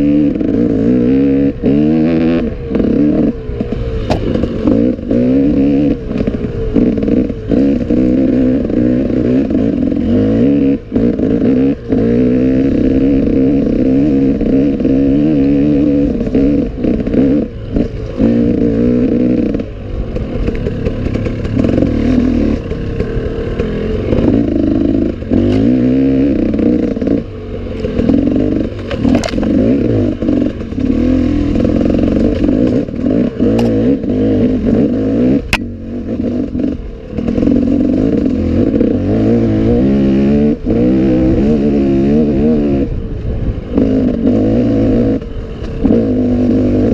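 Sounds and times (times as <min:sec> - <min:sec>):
motorcycle engine revving: 0:00.0 - 0:46.9
motorcycle clattering over rough ground: 0:02.6 - 0:05.2, 0:19.5 - 0:25.8, 0:26.4 - 0:34.1.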